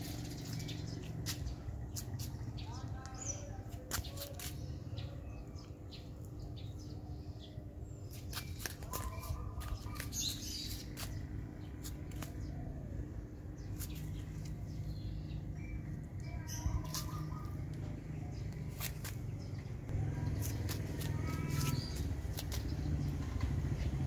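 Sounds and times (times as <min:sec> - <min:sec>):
small birds chirping: 0:00.0 - 0:24.0
low steady rumble: 0:09.1 - 0:24.0.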